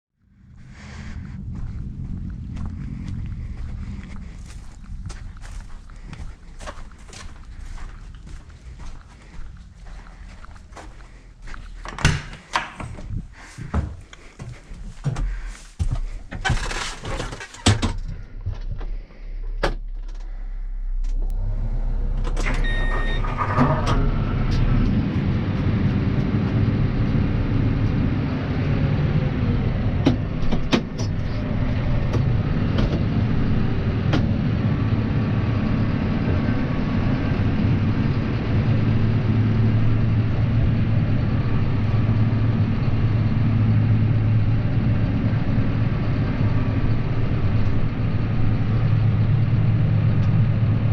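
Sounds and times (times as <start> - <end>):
tractor diesel engine running: 0.2 - 50.9
short beep: 22.4 - 23.6.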